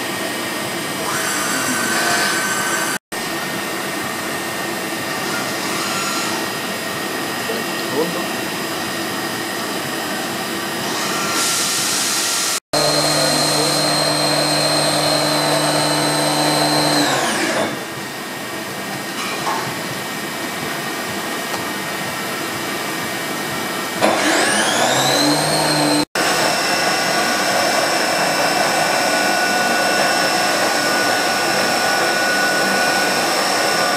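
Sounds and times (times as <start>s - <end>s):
milling machine motor whine: 0.8s - 3.0s, 3.8s - 18.2s, 23.9s - 33.9s.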